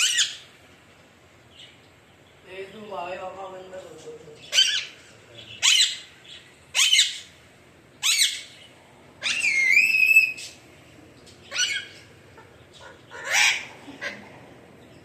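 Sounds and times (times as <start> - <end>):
parakeet calling: 0.0 - 0.6, 4.3 - 15.0.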